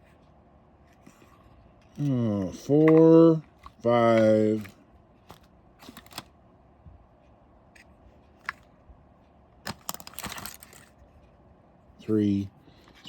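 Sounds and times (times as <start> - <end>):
metal drill bits clicking: 9.7 - 10.9.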